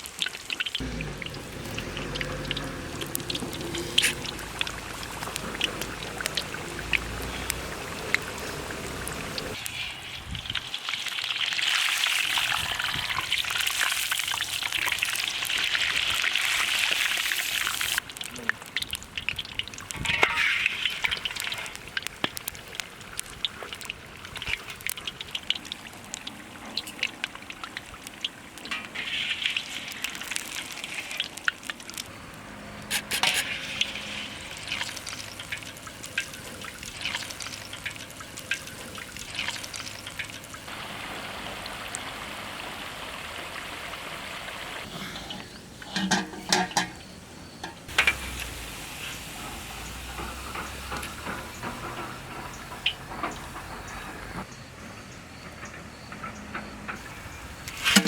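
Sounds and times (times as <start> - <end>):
food sizzling in a pan: 3.2 - 18.4, 19.9 - 22.7, 45.5 - 53.6.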